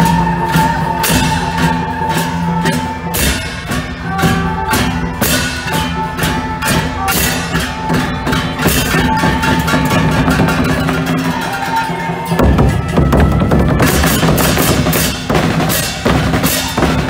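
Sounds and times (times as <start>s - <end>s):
cymbals: 0.0s - 17.0s
drums: 0.0s - 17.0s
gongs: 0.0s - 17.0s.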